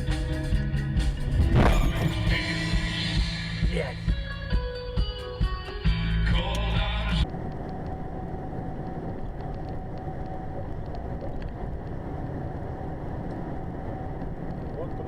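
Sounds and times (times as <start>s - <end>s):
music: 0.0s - 7.2s.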